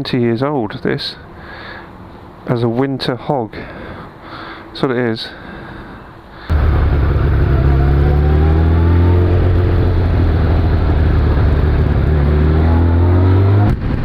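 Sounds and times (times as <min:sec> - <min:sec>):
motorcycle engine under load: 0:06.5 - 0:13.6.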